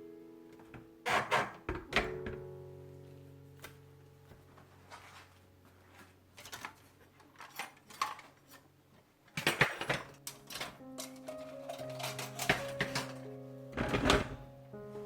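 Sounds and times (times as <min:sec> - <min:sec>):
kitchenware clinking: 0:06.4 - 0:08.6, 0:09.4 - 0:14.4
kitchenware clattering knocks: 0:09.4 - 0:13.2, 0:13.8 - 0:14.4.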